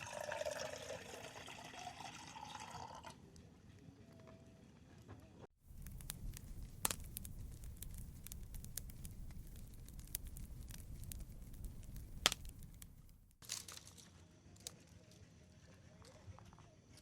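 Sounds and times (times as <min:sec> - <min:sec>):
campfire crackling and popping: 0:05.6 - 0:14.0
low steady rumble: 0:05.7 - 0:13.4.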